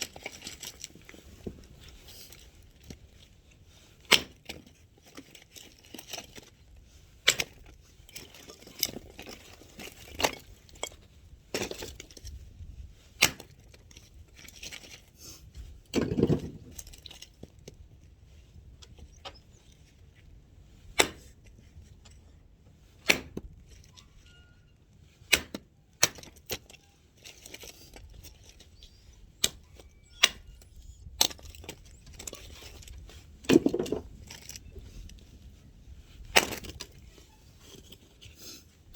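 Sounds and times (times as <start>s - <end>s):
axe striking firewood: 4.1s - 4.6s, 13.2s - 13.6s, 15.9s - 16.7s, 20.9s - 21.3s, 23.0s - 23.5s, 25.3s - 26.4s, 33.4s - 34.1s.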